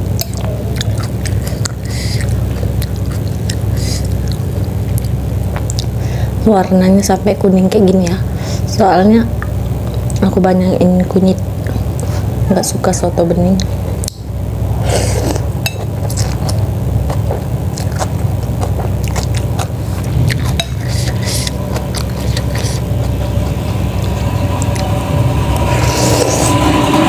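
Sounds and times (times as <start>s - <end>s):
steady low rumble: 0.0s - 27.0s
small engine running: 16.1s - 27.0s.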